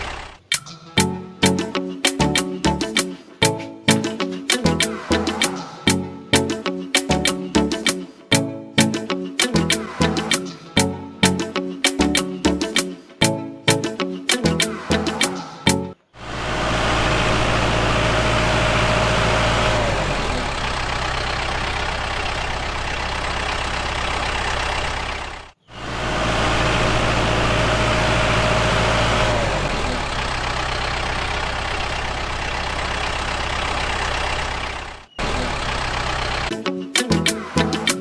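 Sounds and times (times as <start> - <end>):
engine running: 0.0 - 8.9, 16.2 - 36.5.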